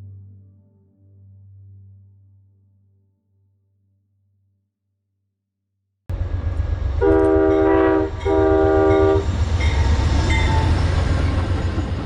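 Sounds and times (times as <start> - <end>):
train rumbling: 6.1 - 12.0
train horn blasts: 7.0 - 9.9.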